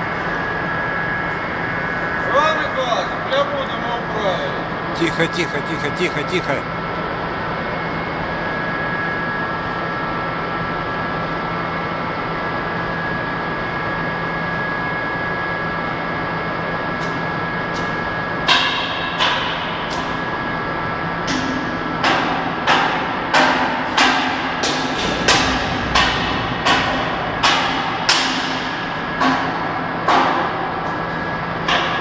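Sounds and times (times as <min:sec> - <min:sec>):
machine hum: 0:00.0 - 0:08.9, 0:15.7 - 0:32.0
sharp ringing knocks: 0:21.3 - 0:30.7.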